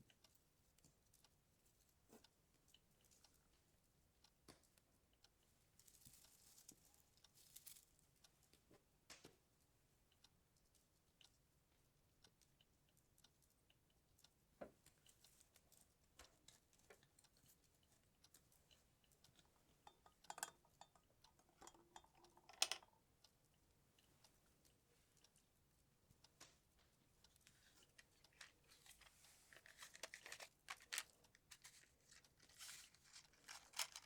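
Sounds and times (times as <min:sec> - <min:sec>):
small objects clicking and tapping: 0:19.3 - 0:23.0, 0:27.8 - 0:34.0.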